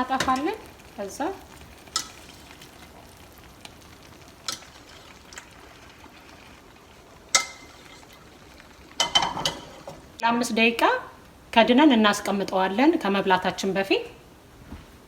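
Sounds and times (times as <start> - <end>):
sauce sizzling in pot: 0.0 - 14.5
cookware clinking: 7.3 - 8.2, 9.0 - 10.0.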